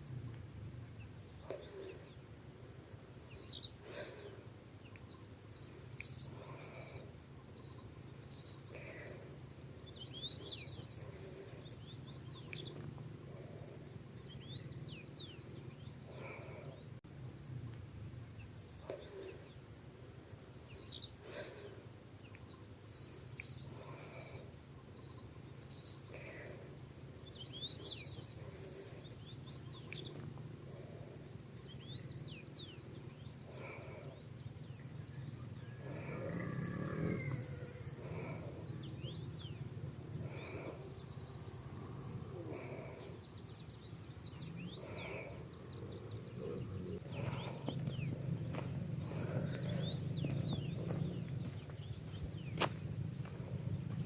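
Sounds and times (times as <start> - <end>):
birds chirping and singing: 0.0 - 17.0, 18.0 - 54.0
low outdoor rumble: 0.0 - 54.0
lower-pitched bird call: 35.1 - 43.2.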